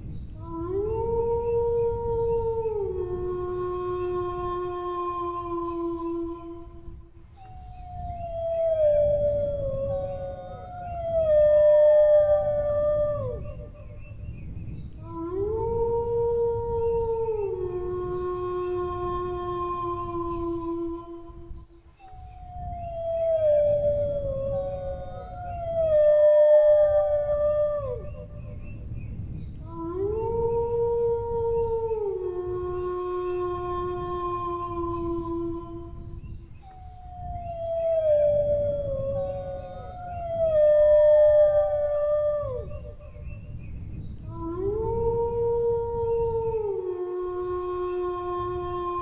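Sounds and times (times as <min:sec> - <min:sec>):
second higher howl: 0:00.4 - 0:14.0, 0:15.0 - 0:43.6, 0:44.2 - 0:49.0
dog howling: 0:15.1 - 0:21.4, 0:22.5 - 0:28.6, 0:36.8 - 0:43.3, 0:44.3 - 0:49.0.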